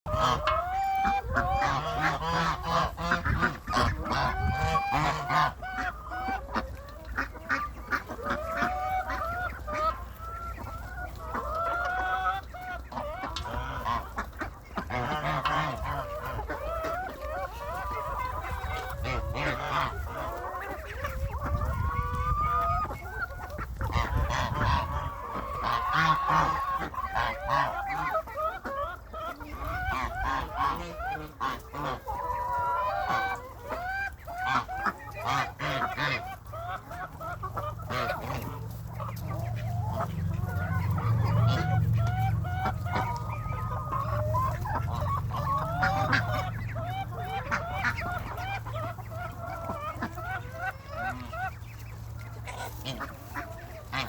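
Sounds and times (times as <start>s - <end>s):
flock of farm birds calling: 0.1s - 54.0s.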